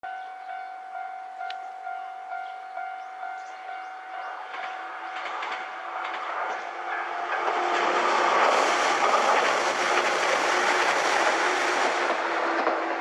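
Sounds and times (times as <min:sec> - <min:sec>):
pulsing ringing tone: 0:00.0 - 0:06.0
electric train running: 0:01.8 - 0:13.0.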